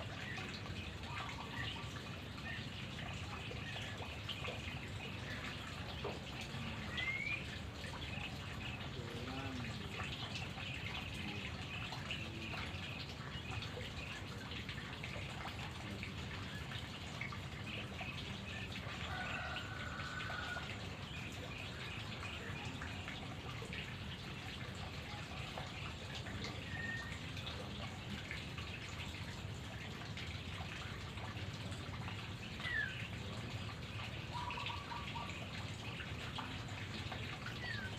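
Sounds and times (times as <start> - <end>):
drip-like ticking: 0.0 - 37.9
whistled bird calls: 6.9 - 7.6, 26.6 - 27.2.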